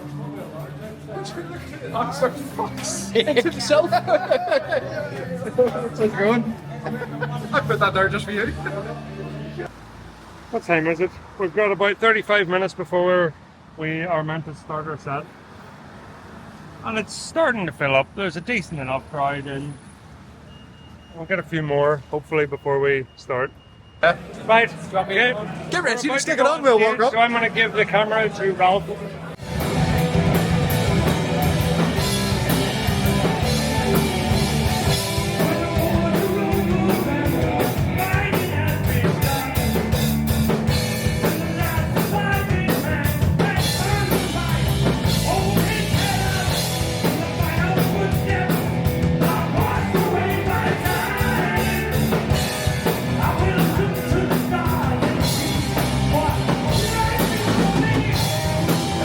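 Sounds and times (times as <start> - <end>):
rock band playing live: 29.4 - 59.0
person singing: 33.2 - 40.2, 41.1 - 59.0.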